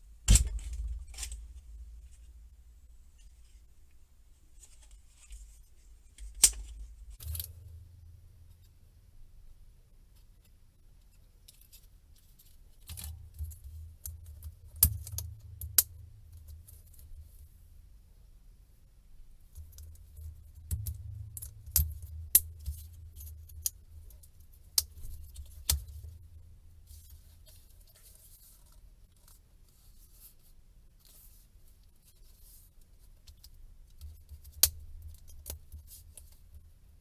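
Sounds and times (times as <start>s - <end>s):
low rumble of handling: 0.0s - 8.8s
metal and plastic clicks and taps: 6.2s - 7.5s.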